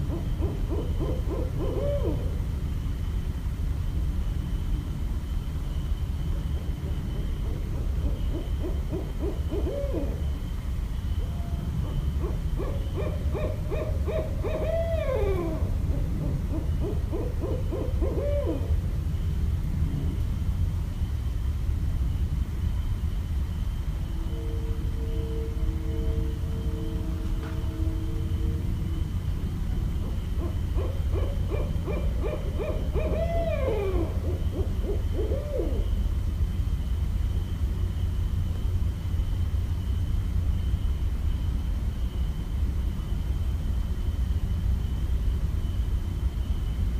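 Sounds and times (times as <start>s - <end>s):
owl hooting: 0.0s - 2.7s, 6.5s - 19.0s, 24.0s - 36.4s.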